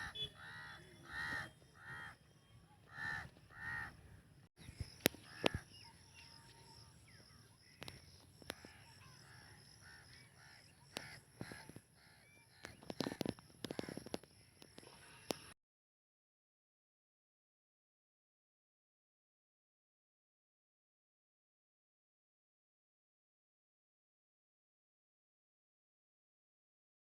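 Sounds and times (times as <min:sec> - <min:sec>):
crows cawing: 0:00.0 - 0:02.2, 0:02.9 - 0:04.0, 0:08.5 - 0:14.1
faint bird chirps: 0:04.6 - 0:15.6.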